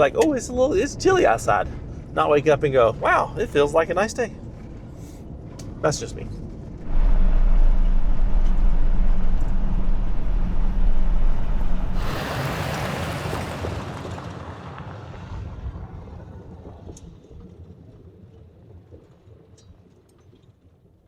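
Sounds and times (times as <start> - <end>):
vehicle driving past on dirt road: 6.8 - 17.5.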